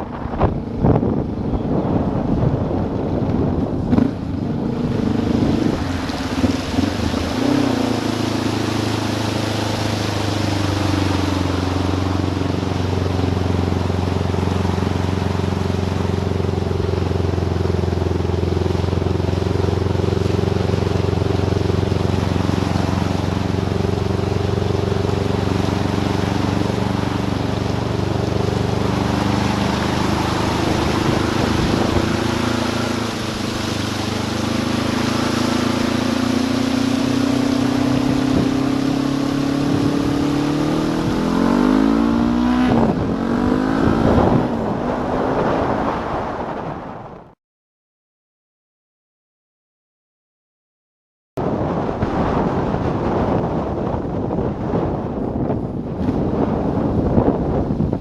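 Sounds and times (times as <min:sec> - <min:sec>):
motorcycle engine running: 0:00.0 - 0:45.3.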